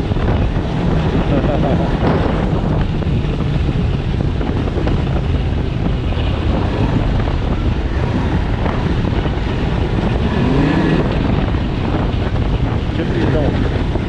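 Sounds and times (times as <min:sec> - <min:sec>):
snowmobile engine running: 0:00.0 - 0:14.0
wind buffeting microphone: 0:00.0 - 0:14.0.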